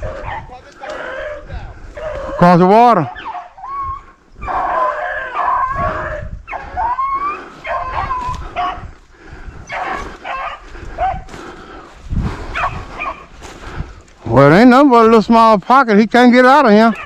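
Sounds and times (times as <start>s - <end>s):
dogs baying and yipping: 0.0s - 11.4s, 12.4s - 13.4s.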